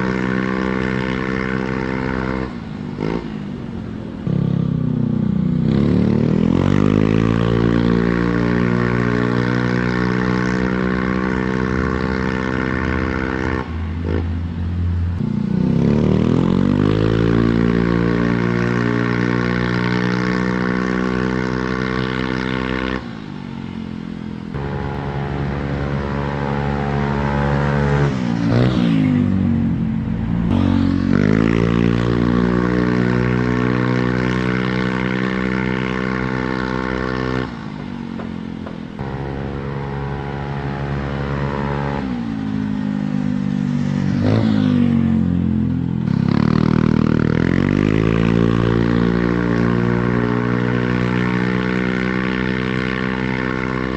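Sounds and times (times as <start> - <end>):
scooter engine revving: 0.0 - 14.4, 15.2 - 53.9.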